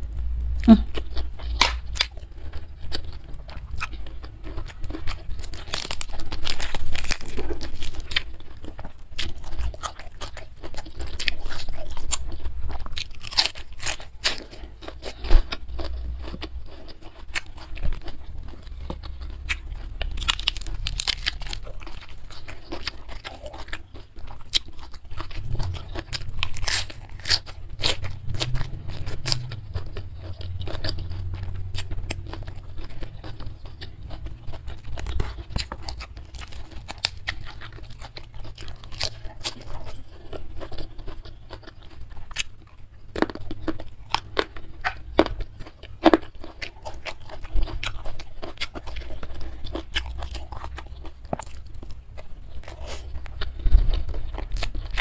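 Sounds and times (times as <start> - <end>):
person chewing crunchy food: 0.0 - 55.0.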